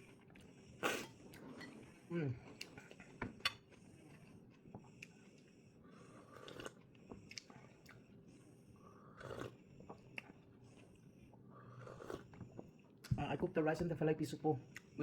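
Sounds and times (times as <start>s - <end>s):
person chewing food: 2.5s - 5.5s, 6.1s - 8.3s, 9.1s - 13.1s.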